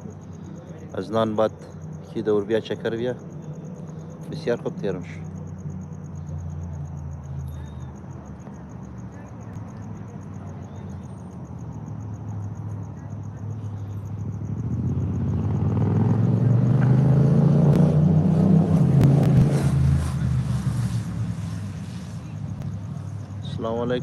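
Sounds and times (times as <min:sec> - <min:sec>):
vehicle passing by: 0:13.4 - 0:24.0.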